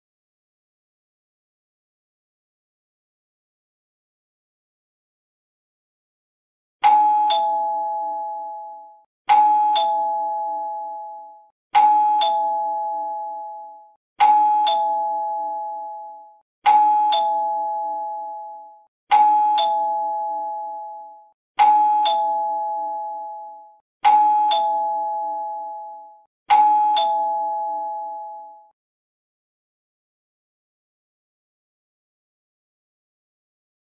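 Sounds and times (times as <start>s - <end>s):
two-tone doorbell chime: 6.8s - 28.8s.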